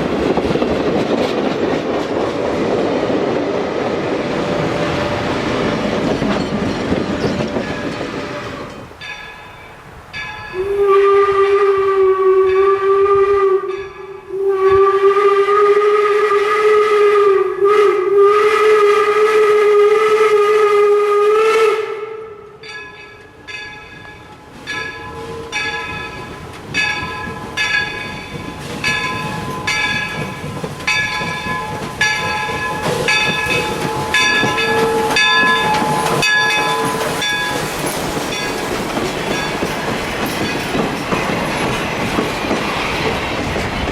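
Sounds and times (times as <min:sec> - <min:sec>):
bell ringing in steady strokes: 0:08.7 - 0:10.6, 0:22.6 - 0:40.8
steam locomotive whistle blasts: 0:10.5 - 0:22.7, 0:24.8 - 0:26.4, 0:31.7 - 0:37.7.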